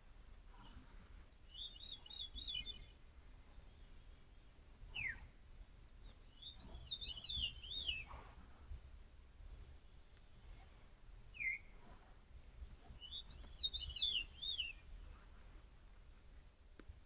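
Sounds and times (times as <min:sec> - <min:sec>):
faint low rumble: 0:00.0 - 0:17.0
songbird singing: 0:00.6 - 0:08.4, 0:09.6 - 0:12.0, 0:12.6 - 0:15.3.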